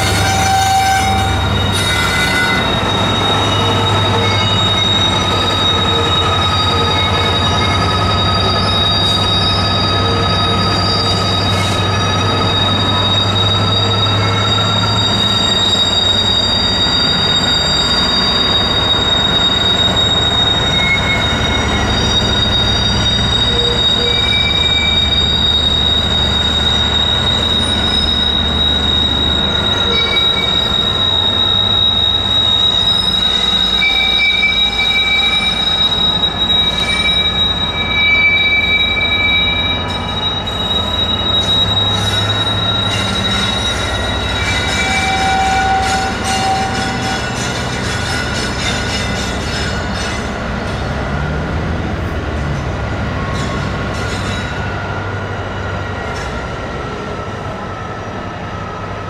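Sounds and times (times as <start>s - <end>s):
low train rumble: 0.0s - 59.0s
train wheels squealing: 0.0s - 59.0s.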